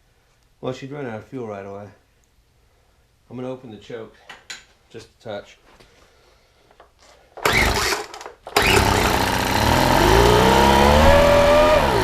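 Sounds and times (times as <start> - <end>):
leaf blower engine starting and running: 7.4 - 12.0.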